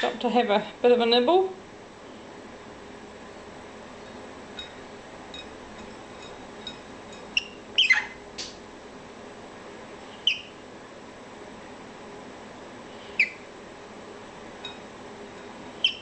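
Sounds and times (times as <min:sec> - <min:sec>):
cockatiel chirping: 0:07.4 - 0:08.2, 0:10.2 - 0:10.6, 0:13.1 - 0:13.4, 0:15.8 - 0:16.0.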